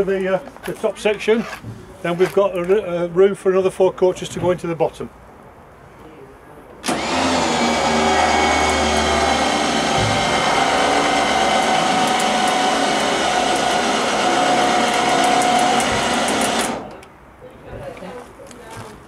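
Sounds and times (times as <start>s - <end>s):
electric motor whining: 6.9s - 17.0s.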